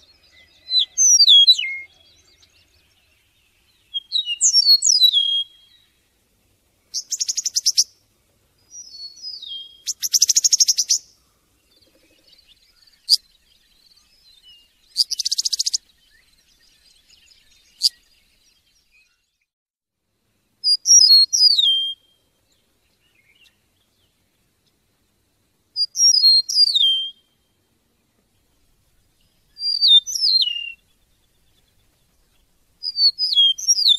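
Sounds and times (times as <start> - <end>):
bird trill: 0.0 - 5.9, 6.9 - 8.0, 8.7 - 19.2, 20.6 - 22.2, 25.8 - 27.3, 29.3 - 33.9
songbird singing: 0.0 - 19.5, 20.2 - 33.9.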